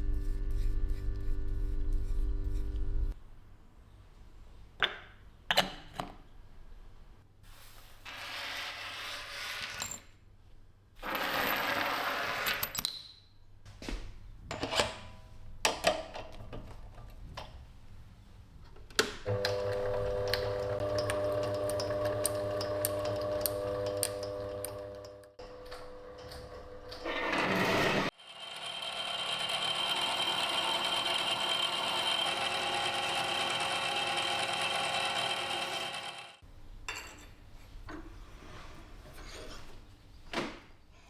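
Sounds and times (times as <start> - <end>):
small electric motor humming: 28.2 - 36.4.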